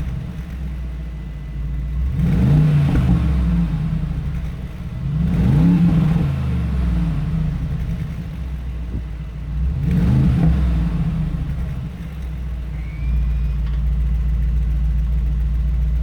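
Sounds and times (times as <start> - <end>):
car exhaust revving: 0.0 - 16.0.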